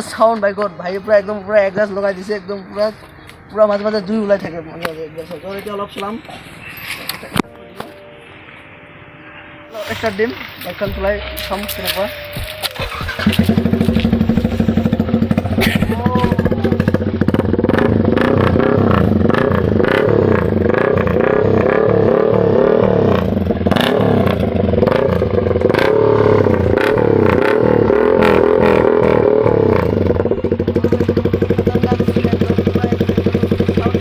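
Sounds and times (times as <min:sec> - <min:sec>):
motorcycle engine revving: 0:10.8 - 0:34.0.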